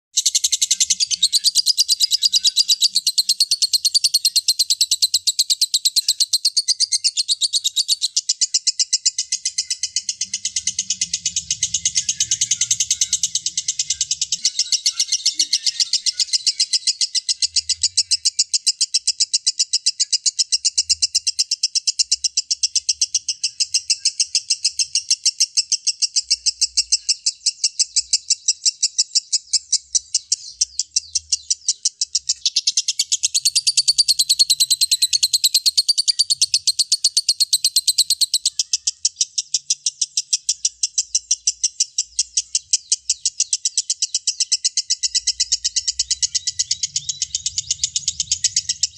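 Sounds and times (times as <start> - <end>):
high bird warbling: 0.1 - 18.6, 28.2 - 48.9
lovebird rapid chirping: 0.1 - 48.9.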